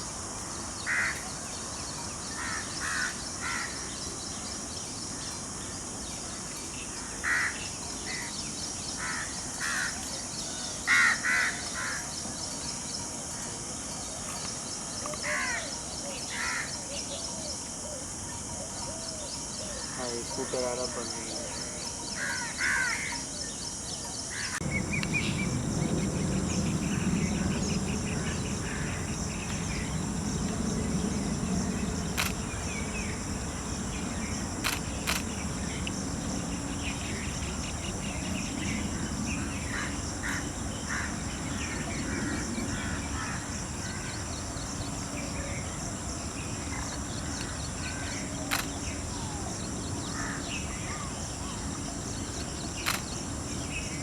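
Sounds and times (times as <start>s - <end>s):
high insect drone: 0.0s - 54.0s
low rumble: 24.6s - 39.3s
sharp clicks: 32.1s - 32.6s, 34.6s - 36.0s, 48.5s - 48.8s, 52.8s - 53.2s.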